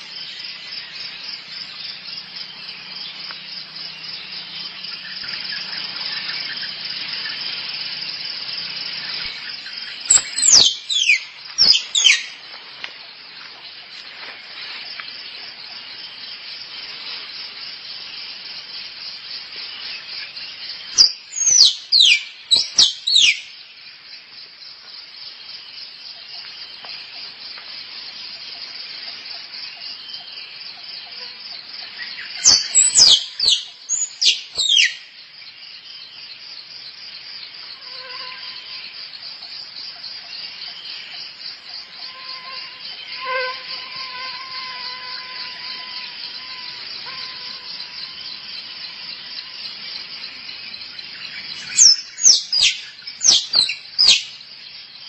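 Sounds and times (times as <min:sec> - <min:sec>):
high-pitched insect drone: 0:00.0 - 0:23.7, 0:26.8 - 0:35.3, 0:37.4 - 0:55.0
squirrel chirping: 0:10.1 - 0:12.2, 0:32.5 - 0:35.0, 0:51.6 - 0:54.3.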